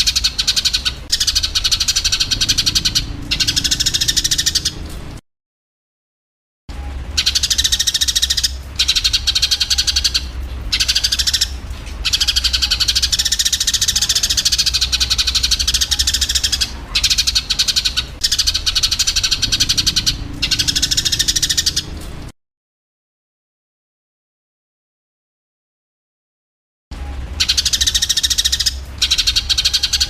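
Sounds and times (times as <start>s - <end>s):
sparrows chirping: 0.0s - 5.1s, 6.9s - 22.0s, 27.4s - 30.0s
steady low hum: 0.0s - 5.2s, 6.7s - 22.3s.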